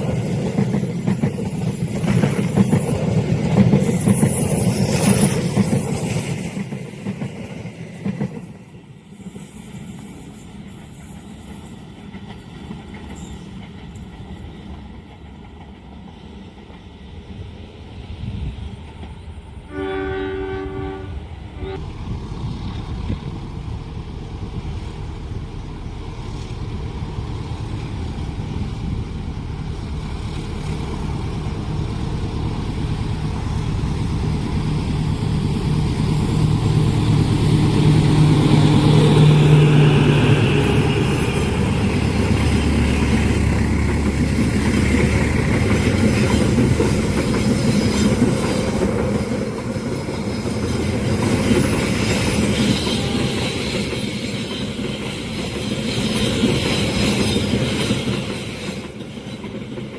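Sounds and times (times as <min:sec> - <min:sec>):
train carriages rumbling: 0:00.0 - 0:59.9
locomotive engine drone: 0:21.1 - 0:49.8.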